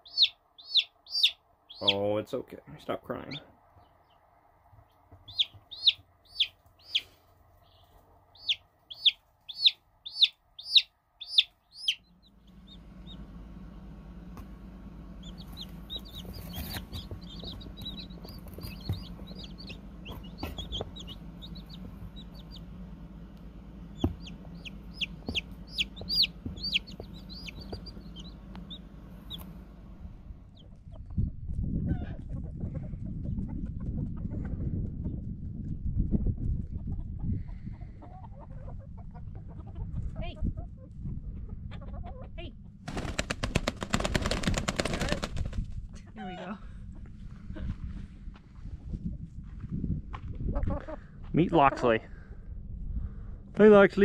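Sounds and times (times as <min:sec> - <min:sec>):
baby chicks peeping: 0:00.0 - 0:35.4, 0:36.4 - 0:42.4, 0:50.4 - 0:52.0
steady low hum: 0:00.0 - 0:54.0.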